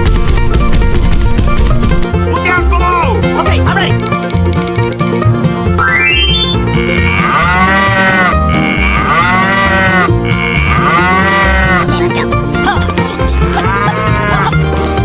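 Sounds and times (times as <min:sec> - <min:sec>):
children's music with a beat: 0:03.8 - 0:07.2
cow mooing: 0:06.8 - 0:11.9, 0:13.6 - 0:14.5.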